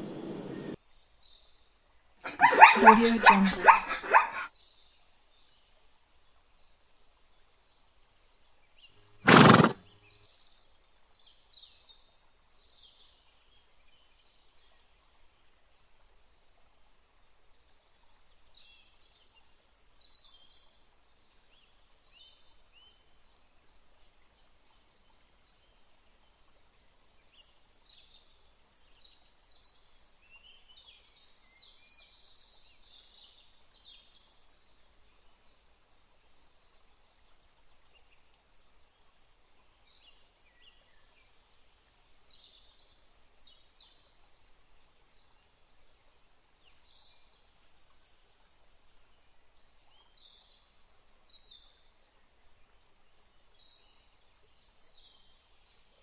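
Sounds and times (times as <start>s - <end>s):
faint high chirping: 0.0s - 0.8s, 2.3s - 4.5s
loud animal call: 0.0s - 0.8s, 2.3s - 4.5s, 9.3s - 9.8s.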